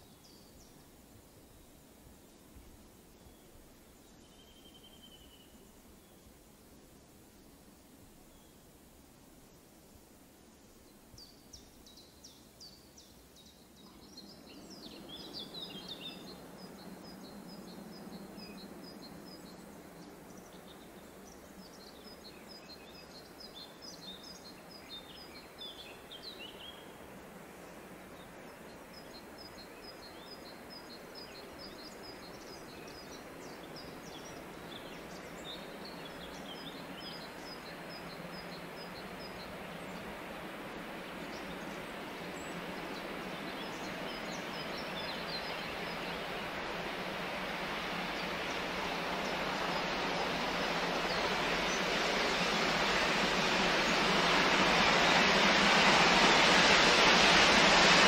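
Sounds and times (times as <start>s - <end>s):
songbirds singing: 10.5s - 55.5s
rushing noise: 37.7s - 58.0s.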